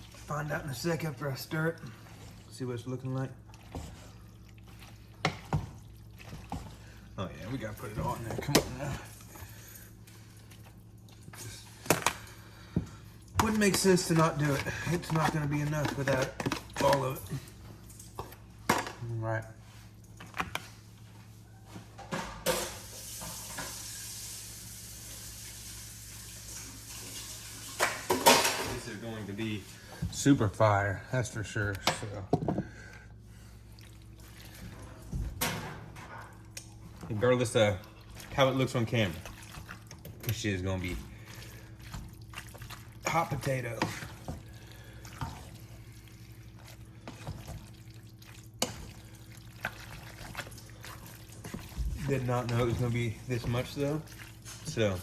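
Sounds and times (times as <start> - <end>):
spoon stirring food in pan: 0.0 - 19.0, 36.3 - 55.0
meat sizzling in a pan: 22.8 - 28.2.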